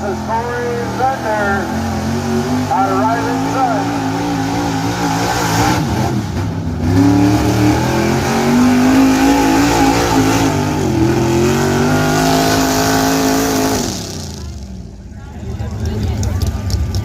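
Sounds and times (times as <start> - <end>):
pickup truck engine at high revs: 0.0 - 15.0.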